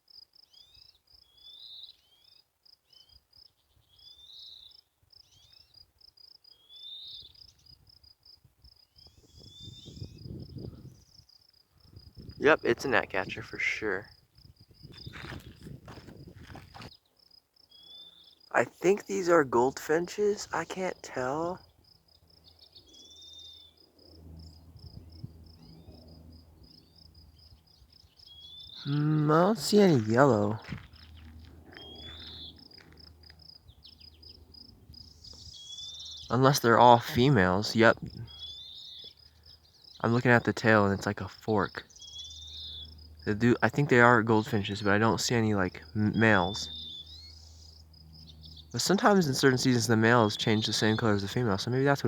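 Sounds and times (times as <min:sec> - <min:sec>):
insect chirping: 0:00.0 - 0:18.6, 0:21.4 - 0:36.3, 0:38.0 - 0:40.1, 0:41.8 - 0:44.3, 0:45.2 - 0:51.0
small bird calls: 0:00.4 - 0:05.8, 0:06.4 - 0:07.8, 0:08.8 - 0:14.0, 0:16.6 - 0:52.0
faint bird calls: 0:27.9 - 0:33.1.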